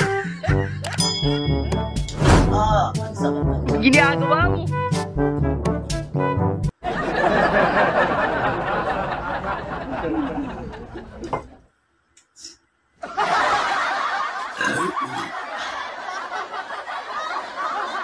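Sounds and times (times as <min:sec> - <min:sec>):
brass music: 0:03.2 - 0:06.7
several voices laughing: 0:06.8 - 0:11.4, 0:13.0 - 0:18.0.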